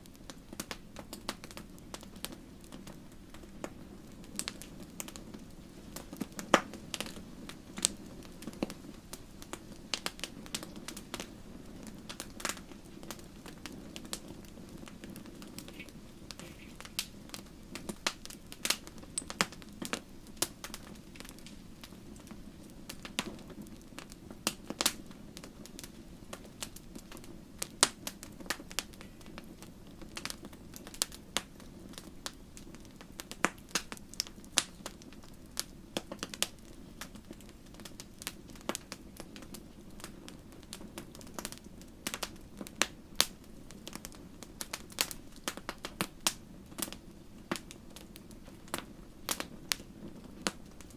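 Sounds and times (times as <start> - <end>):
wood fire crackling: 0.0 - 50.9.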